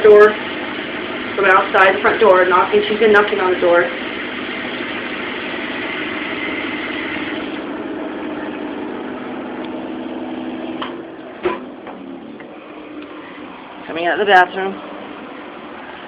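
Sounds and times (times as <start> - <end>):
air conditioning blower hum: 0.0 - 16.0
exhaust fans: 6.8 - 16.0.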